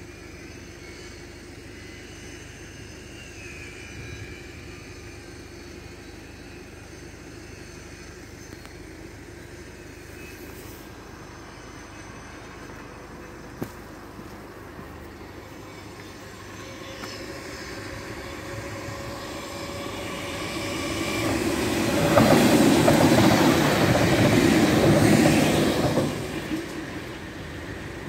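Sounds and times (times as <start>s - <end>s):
electric train passing: 0.0s - 28.0s
wheels clattering over rails: 18.9s - 27.5s.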